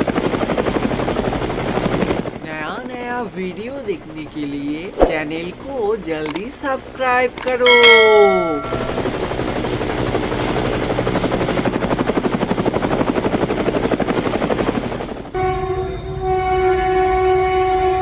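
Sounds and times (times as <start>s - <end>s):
helicopter rotor chopping: 8.9s - 15.3s
train horn: 15.3s - 18.0s.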